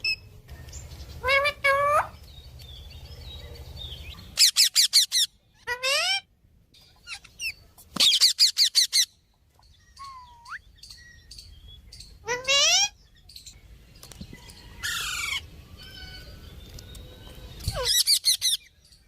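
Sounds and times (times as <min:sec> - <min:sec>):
parrot calls: 0:01.2 - 0:02.2, 0:04.4 - 0:06.3, 0:12.2 - 0:13.0.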